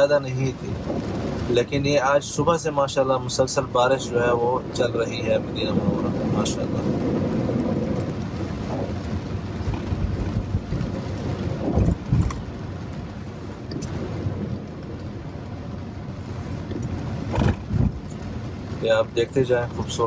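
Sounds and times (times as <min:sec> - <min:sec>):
car driving on wet road: 0:00.0 - 0:20.0
heavy rain: 0:00.0 - 0:20.0
low thumps: 0:05.8 - 0:13.1, 0:16.5 - 0:18.8.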